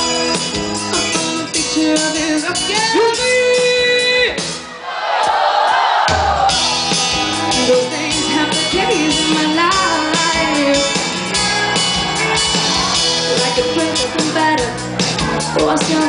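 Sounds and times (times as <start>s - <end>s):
person singing: 0.0s - 4.3s, 7.3s - 12.0s, 13.0s - 16.0s
live rock band playing: 0.0s - 5.3s, 6.0s - 16.0s.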